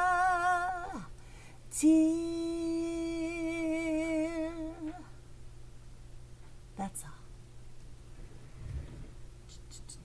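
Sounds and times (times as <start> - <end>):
woman singing unaccompanied: 0.0 - 5.2.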